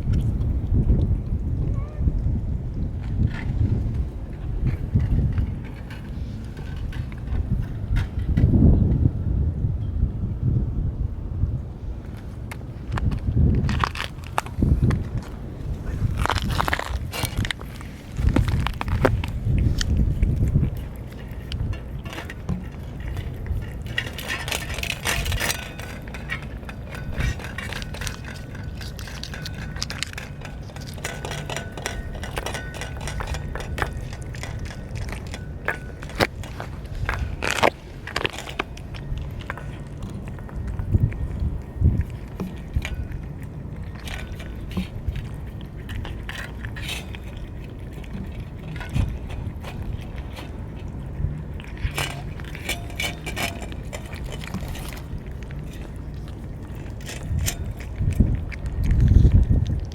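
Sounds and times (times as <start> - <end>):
cats crunching kibble: 0.0 - 9.4, 11.8 - 59.9
steady low rumble: 0.0 - 59.9
kibble clinking against dish: 20.6 - 41.4.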